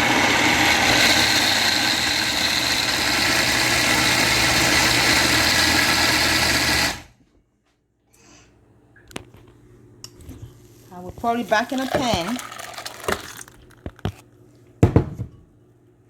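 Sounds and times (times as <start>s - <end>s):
electric blender running: 0.0s - 7.2s.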